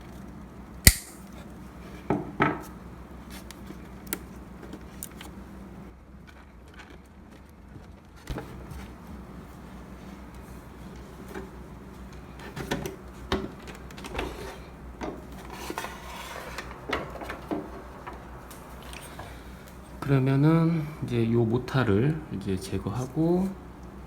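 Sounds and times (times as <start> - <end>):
low steady hum: 8.3 - 24.0.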